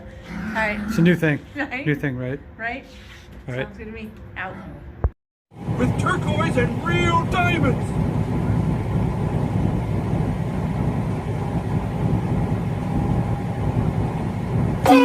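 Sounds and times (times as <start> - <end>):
faint steady whine: 5.6 - 15.0
vehicle engine rumbling: 5.6 - 15.0.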